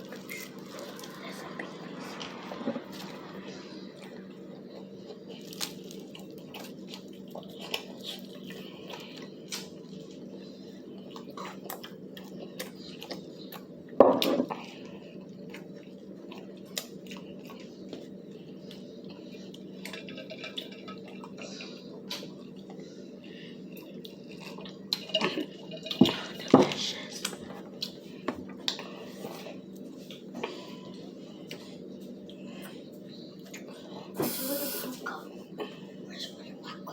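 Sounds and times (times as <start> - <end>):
chewing crispy fried chicken: 0.0 - 34.2
steady low hum: 0.0 - 36.9.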